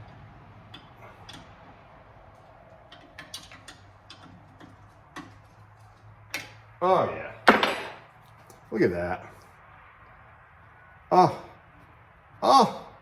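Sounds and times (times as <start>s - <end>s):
wrench clicking on bolt: 2.9s - 5.3s.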